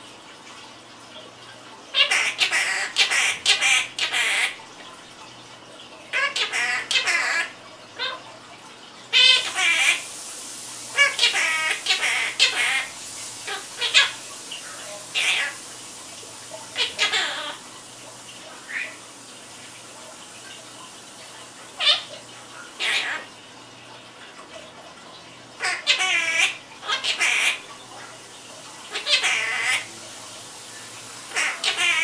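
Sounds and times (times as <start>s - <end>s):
parrot squawky calls: 1.9s - 4.6s, 6.1s - 8.3s, 9.1s - 10.1s, 10.9s - 15.6s, 16.7s - 17.7s, 18.6s - 19.1s, 21.8s - 23.4s, 25.6s - 27.7s, 28.9s - 30.0s, 31.3s - 32.0s.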